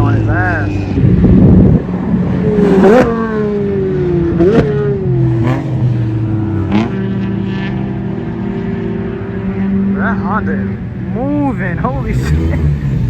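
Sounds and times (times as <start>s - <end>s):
low drone of race cars: 0.0s - 13.0s
race car engine revving: 0.0s - 13.0s.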